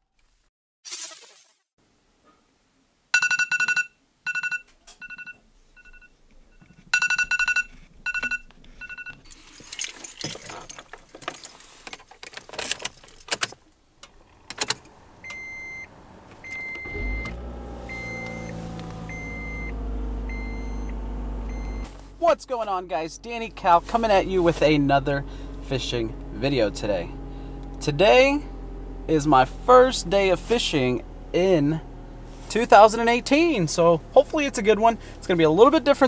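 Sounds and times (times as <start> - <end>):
keys jangling: 9.3 - 13.6
car engine idling: 14.0 - 36.0
car warning chime: 15.2 - 21.9.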